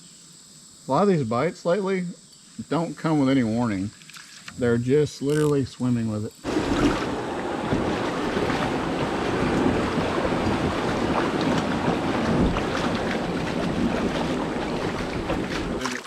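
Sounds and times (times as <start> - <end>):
creek water rushing: 6.4 - 16.0
splashy crackles: 6.4 - 16.0.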